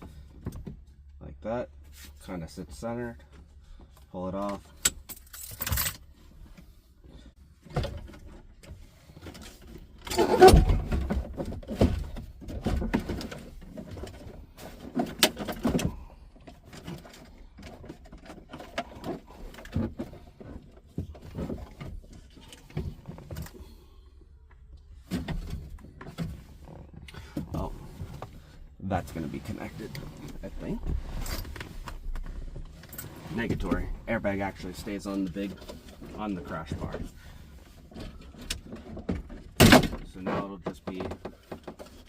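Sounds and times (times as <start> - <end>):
car interior parts clunking: 7.6 - 23.6.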